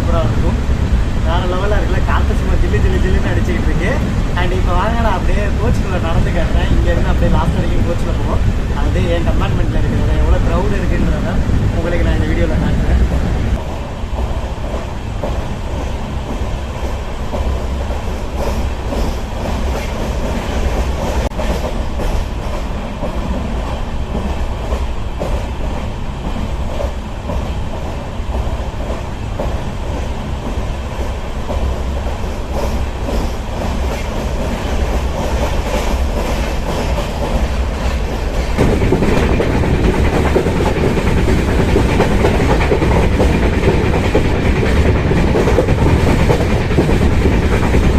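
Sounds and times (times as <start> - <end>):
train rumbling: 0.0 - 47.9
wheels clattering over rails: 30.5 - 47.9.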